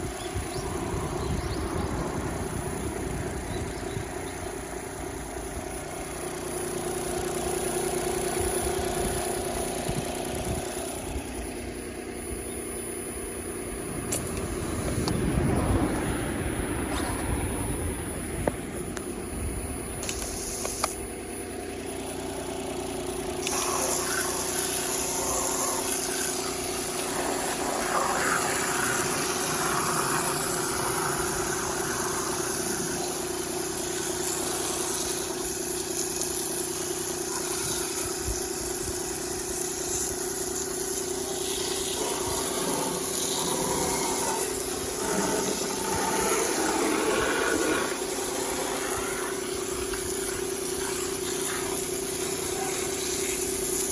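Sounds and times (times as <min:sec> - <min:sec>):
engine running steadily: 0:00.0 - 0:53.9
hissing water spray: 0:20.0 - 0:21.0, 0:22.2 - 0:53.9.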